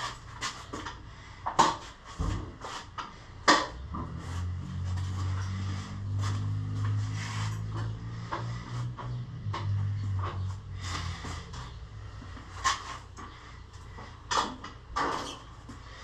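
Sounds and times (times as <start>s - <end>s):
low motor-like hum: 3.7s - 14.2s.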